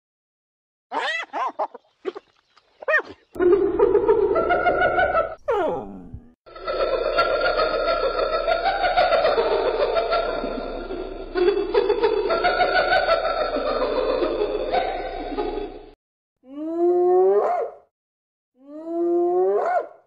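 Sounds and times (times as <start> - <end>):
hyenas giggling and cackling: 0.9 - 15.8
hyena whoop: 5.4 - 6.3.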